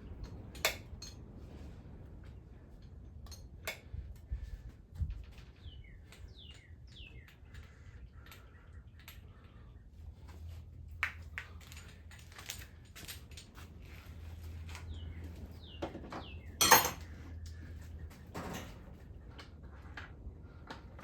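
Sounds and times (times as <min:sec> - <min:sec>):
metal tools clinking and clattering: 0:11.5 - 0:13.7, 0:16.6 - 0:17.2, 0:18.3 - 0:18.9.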